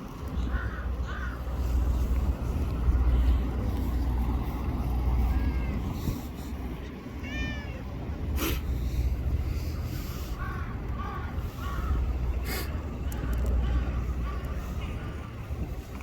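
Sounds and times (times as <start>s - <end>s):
steady low rumble: 0.0s - 16.0s
crow cawing: 0.5s - 1.4s, 10.4s - 12.1s
cat meowing: 5.2s - 5.9s, 7.2s - 7.9s.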